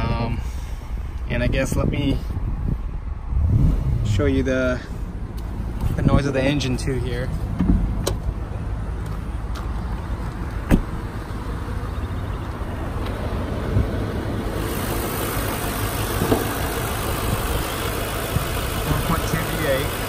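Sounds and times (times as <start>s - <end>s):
car engine idling: 4.7s - 20.0s.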